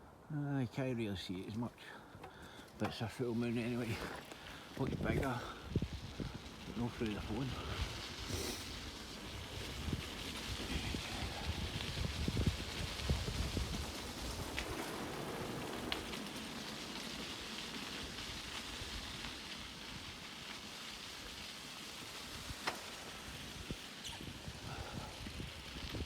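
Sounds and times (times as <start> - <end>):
bicycle tyres on road: 1.9 - 26.0
wind over microphone: 4.8 - 15.4, 23.4 - 26.0.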